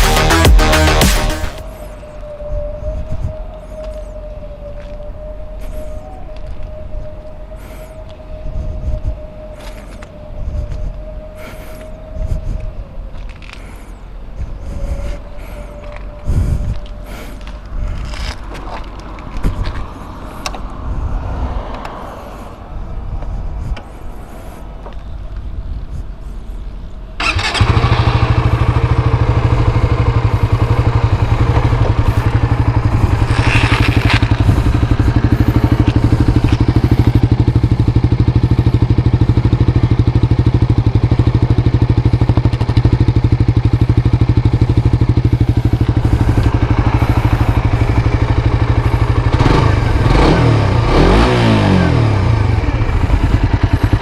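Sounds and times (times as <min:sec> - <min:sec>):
motorcycle engine starting and idling: 0:27.2 - 0:54.0.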